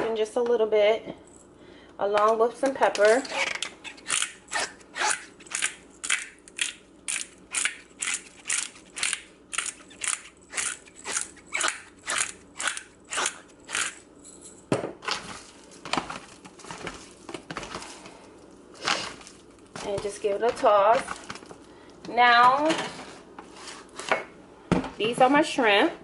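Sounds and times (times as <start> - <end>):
spice grinder grinding: 3.2 - 14.2.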